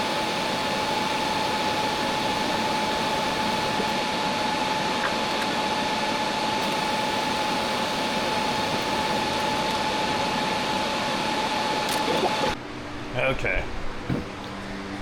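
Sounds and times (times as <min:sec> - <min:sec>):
faint constant whine: 0:00.0 - 0:15.0
welding arc hissing: 0:06.6 - 0:12.6.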